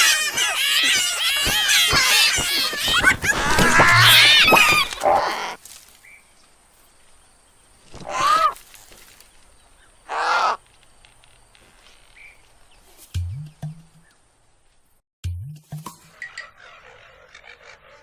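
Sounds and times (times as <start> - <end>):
harsh crow caws: 0.0 - 5.6, 8.0 - 8.6, 10.0 - 10.6
high squeals and squawks: 0.0 - 5.6.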